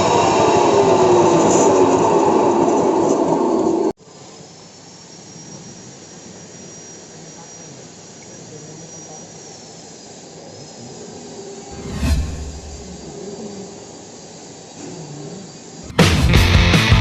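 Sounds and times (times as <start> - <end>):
high-pitched whine: 11.7 - 13.2.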